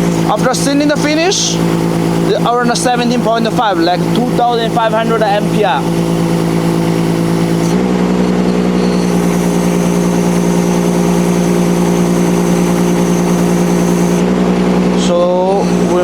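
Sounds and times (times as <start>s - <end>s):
excavator engine running: 0.0s - 16.0s
faint high whine: 8.4s - 14.3s.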